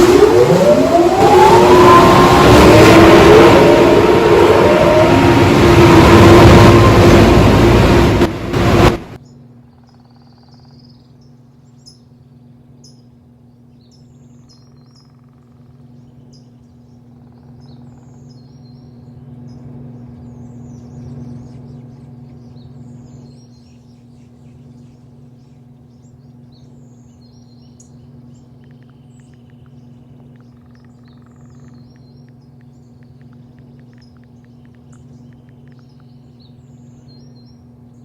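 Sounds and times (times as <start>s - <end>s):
car wash machinery rushing: 0.0s - 9.2s
low steady hum: 0.0s - 38.0s
birds chirping: 15.8s - 38.0s.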